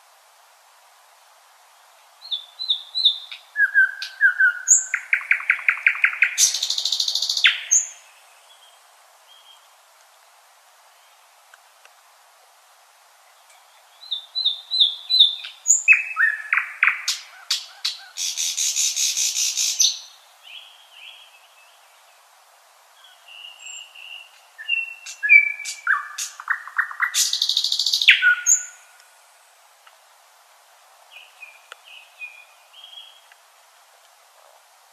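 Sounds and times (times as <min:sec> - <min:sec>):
nightingale singing: 0:01.8 - 0:09.7, 0:13.2 - 0:22.3, 0:22.9 - 0:29.3, 0:31.1 - 0:33.4.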